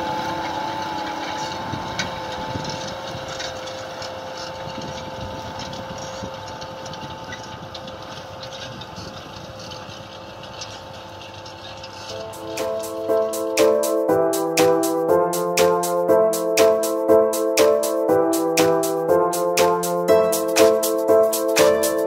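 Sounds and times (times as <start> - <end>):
tractor engine running: 0.0 - 22.0
steady whine: 12.1 - 22.0.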